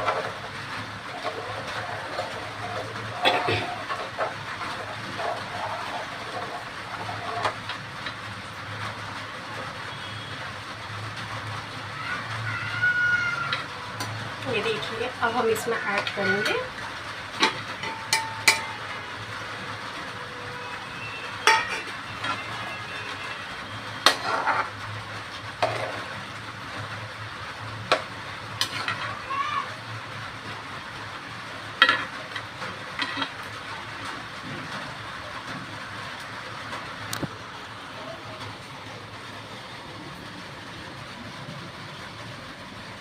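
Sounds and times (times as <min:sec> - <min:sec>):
curry sizzling in a pan: 0:00.0 - 0:37.4
metal spoon scraping a pan: 0:01.2 - 0:07.6, 0:17.4 - 0:18.9, 0:21.2 - 0:23.4, 0:24.0 - 0:24.7, 0:28.6 - 0:29.1, 0:33.0 - 0:33.4.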